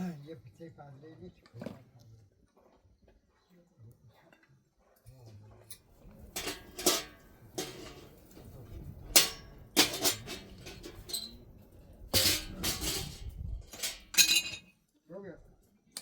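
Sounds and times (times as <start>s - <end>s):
pots and dishes clattering: 5.7s - 14.8s.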